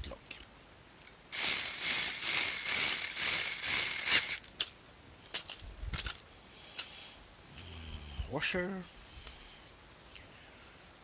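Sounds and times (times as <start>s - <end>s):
small screws rattling together: 0.3s - 6.9s.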